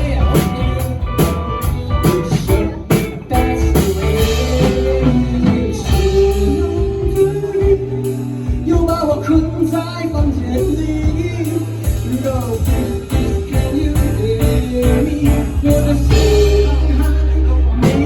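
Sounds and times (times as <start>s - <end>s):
person singing: 0.0s - 18.0s
rock band playing: 0.0s - 18.0s.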